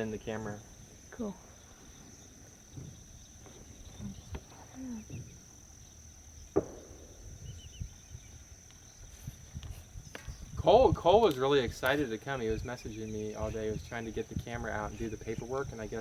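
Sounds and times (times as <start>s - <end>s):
high-pitched insect chorus: 0.0s - 16.0s
faint low knocks: 2.5s - 5.4s.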